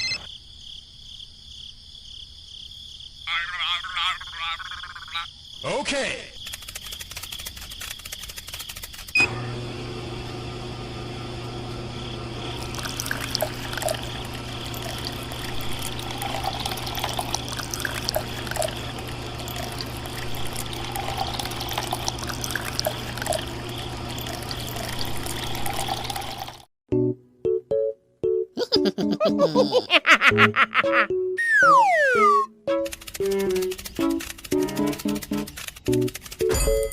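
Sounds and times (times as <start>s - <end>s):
water pump humming: 9.1s - 26.7s
water pouring and splashing: 12.6s - 26.7s.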